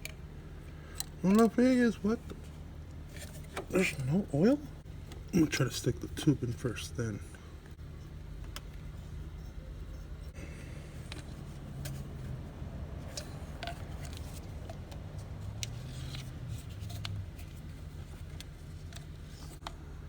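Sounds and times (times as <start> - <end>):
steady low hum: 0.0 - 20.0
plastic tube clicking and scraping: 13.0 - 19.8.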